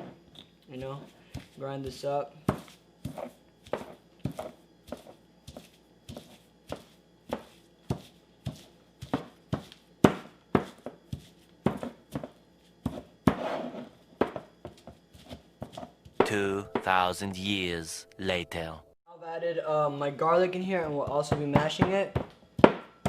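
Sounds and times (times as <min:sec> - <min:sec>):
pestle pounding in a mortar: 0:21.0 - 0:22.9.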